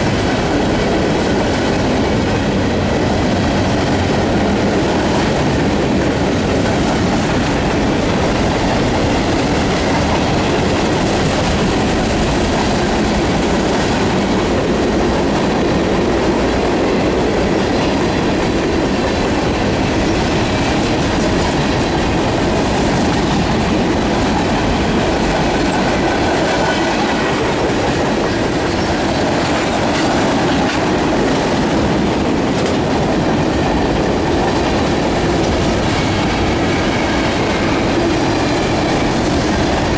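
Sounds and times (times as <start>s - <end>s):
rumble of train wheels on rail: 0.0s - 39.9s
wheels clicking over rail joints: 0.0s - 39.9s.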